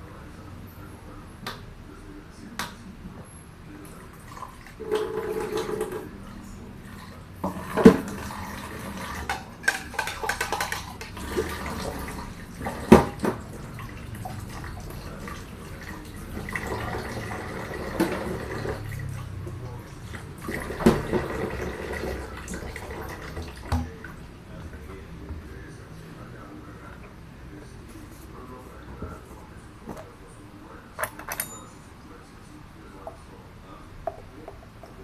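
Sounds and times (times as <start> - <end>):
tap water running: 4.3 - 6.1, 6.8 - 25.5
dishes knocking and clinking: 9.1 - 11.5, 12.7 - 13.4
sharp clanks of dishes: 31.0 - 31.8.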